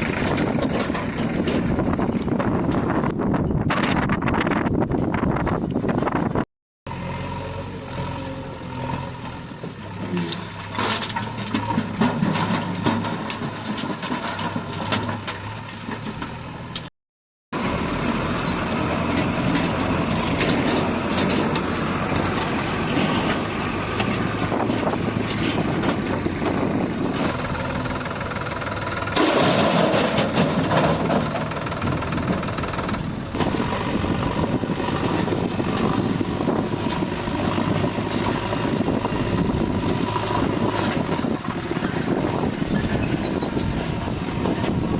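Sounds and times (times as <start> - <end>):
diesel engine working under load: 0.0 - 16.9, 17.5 - 44.9.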